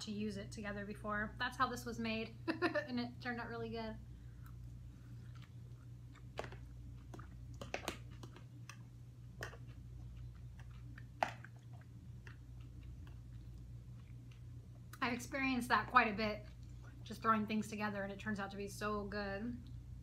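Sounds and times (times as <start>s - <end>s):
chewing close to microphone: 4.3s - 15.0s.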